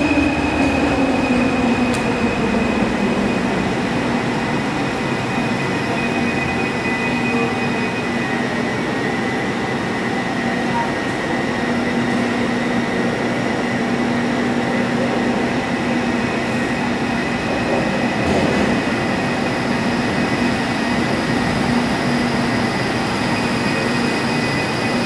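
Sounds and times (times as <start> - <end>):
electric train humming: 0.0 - 25.0.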